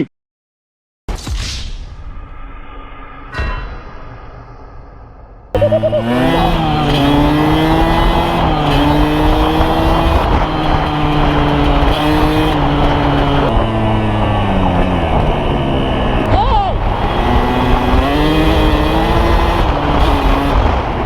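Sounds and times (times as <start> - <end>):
dirt bike engine revving: 5.6 - 21.0.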